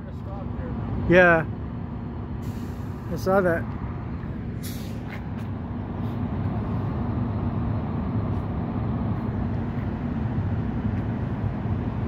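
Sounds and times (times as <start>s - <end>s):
short hiss: 4.6s - 5.2s.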